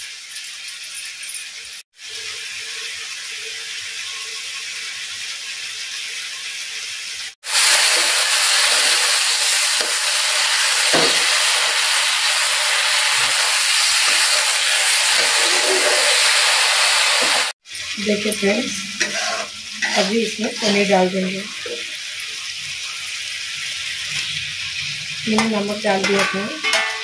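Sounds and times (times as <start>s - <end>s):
masala sizzling in a pan: 1.5s - 27.0s
spatula scraping a pan: 13.2s - 16.5s, 17.2s - 21.9s, 25.3s - 27.0s.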